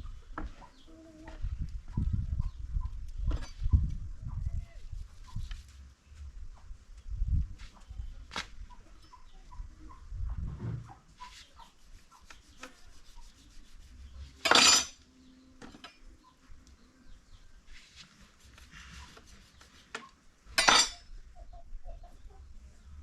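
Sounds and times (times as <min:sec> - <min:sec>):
pot and utensils clinking: 0:14.4 - 0:15.0, 0:20.6 - 0:21.0.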